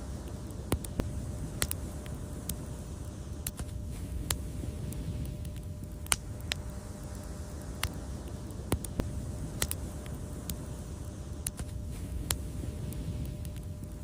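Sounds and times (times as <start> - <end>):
fire crackling and popping: 0.0 - 14.0
low rumble of burning: 0.0 - 14.0.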